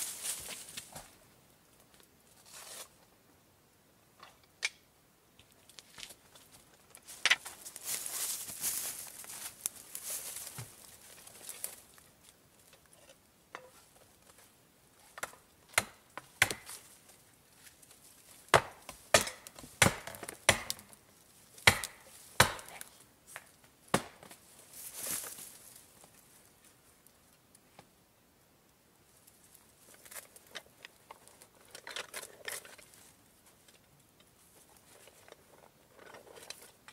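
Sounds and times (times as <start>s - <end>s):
sharp strikes on wood: 15.7s - 16.8s, 18.5s - 20.9s, 21.6s - 22.7s, 23.9s - 24.3s.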